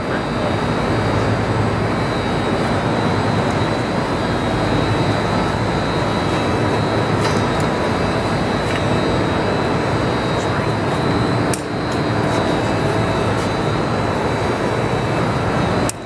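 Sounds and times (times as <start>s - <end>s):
shop machinery droning: 0.0s - 16.0s
thin high whine: 0.0s - 16.0s.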